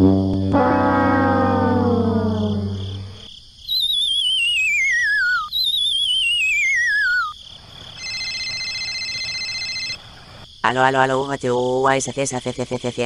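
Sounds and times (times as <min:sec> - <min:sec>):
cartoon falling whistle: 0:00.0 - 0:07.3
telephone ringtone trilling: 0:08.0 - 0:10.0.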